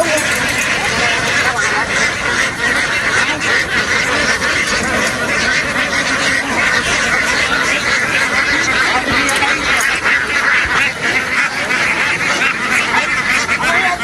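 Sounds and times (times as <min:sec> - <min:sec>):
ducks quacking: 0:00.0 - 0:14.0.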